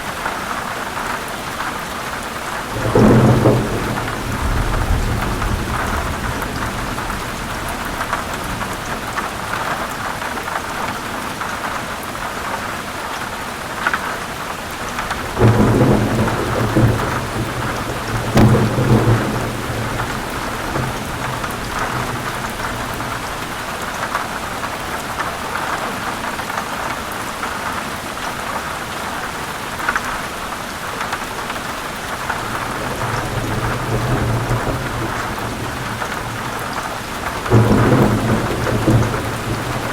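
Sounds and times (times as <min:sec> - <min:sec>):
heavy rain: 0:00.0 - 0:39.9
thunder rumbling: 0:02.6 - 0:09.9, 0:14.9 - 0:24.6, 0:32.3 - 0:39.9.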